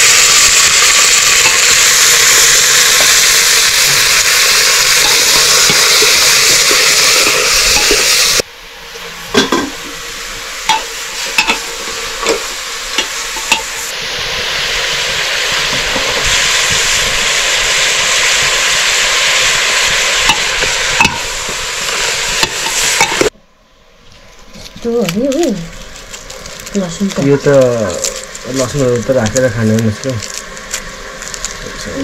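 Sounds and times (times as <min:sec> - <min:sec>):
food sizzling in a pan: 0:00.0 - 0:23.3, 0:24.4 - 0:32.0
loud hiss: 0:00.0 - 0:23.3, 0:25.2 - 0:32.0.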